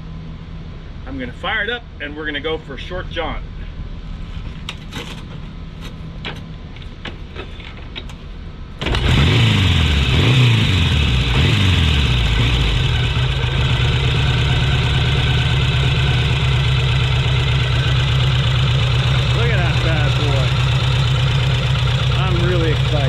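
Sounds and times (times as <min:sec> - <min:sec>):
motorcycle engine revving and idling: 0:08.8 - 0:23.0.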